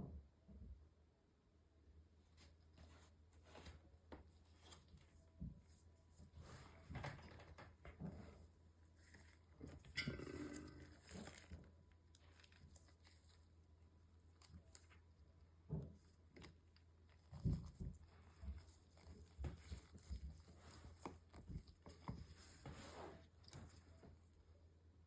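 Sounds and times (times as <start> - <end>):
rustle or scrape: 22.1 - 24.2.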